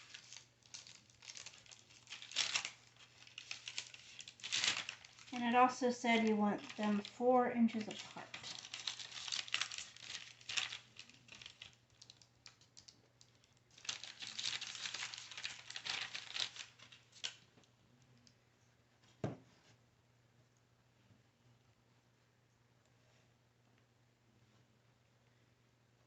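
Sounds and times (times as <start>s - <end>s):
parchment paper crinkling: 0.0s - 17.5s
knock: 19.2s - 19.4s.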